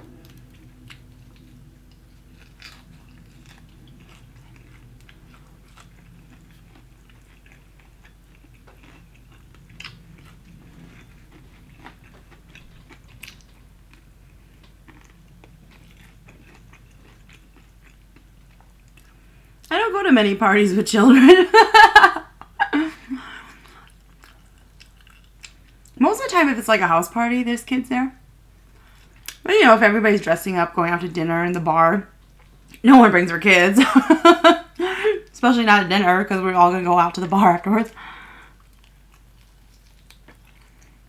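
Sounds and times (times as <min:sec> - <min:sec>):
wet chewing: 0:00.2 - 0:19.5, 0:23.6 - 0:26.0, 0:28.8 - 0:29.5, 0:38.3 - 0:41.0.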